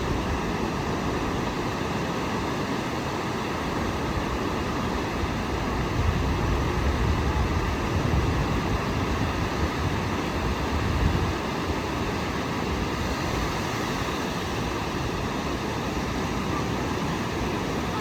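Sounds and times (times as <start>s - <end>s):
sea surf washing on shore: 0.0s - 18.0s
wind buffeting microphone: 5.2s - 18.0s.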